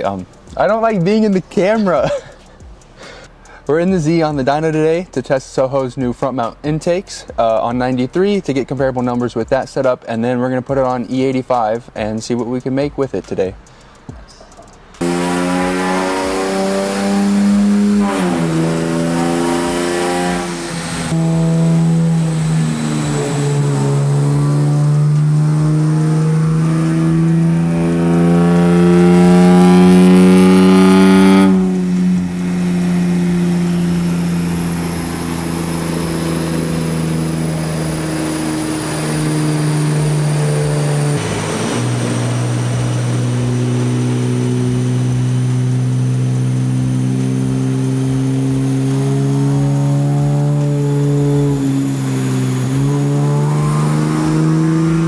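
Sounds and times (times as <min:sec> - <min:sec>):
car engine revving on dyno: 0:14.5 - 0:55.0.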